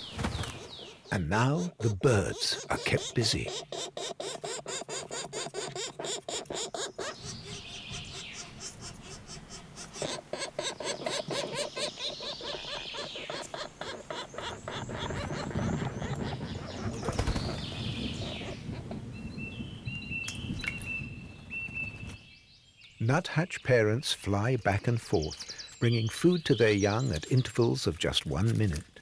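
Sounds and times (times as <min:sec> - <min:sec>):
wings fluttering: 0:00.0 - 0:01.1, 0:04.2 - 0:19.6
birds chirping: 0:00.0 - 0:29.0.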